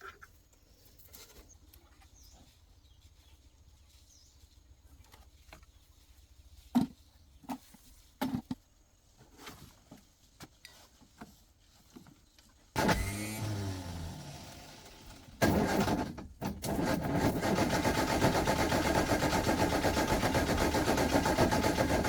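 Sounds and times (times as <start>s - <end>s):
car engine starting: 12.8s - 22.0s.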